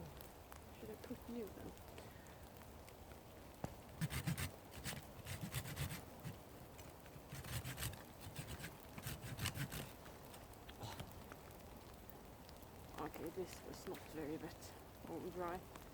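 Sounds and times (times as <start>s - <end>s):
hand saw cutting branch: 4.0s - 6.0s, 7.3s - 10.0s.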